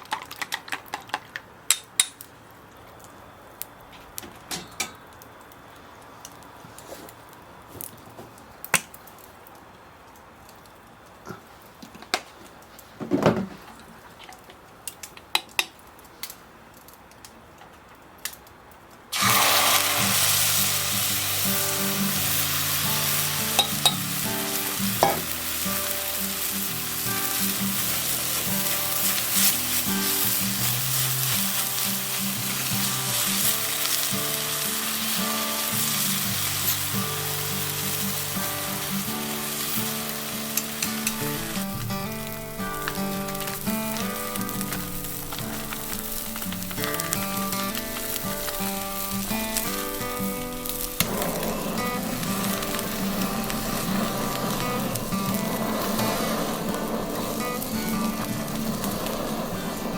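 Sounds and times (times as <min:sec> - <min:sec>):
food sizzling on a grill: 0:19.1 - 0:59.9
background music: 0:36.4 - 0:59.8.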